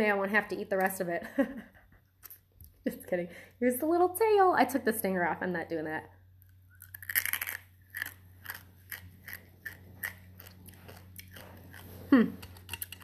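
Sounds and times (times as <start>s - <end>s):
crunching and chewing: 6.4s - 13.0s.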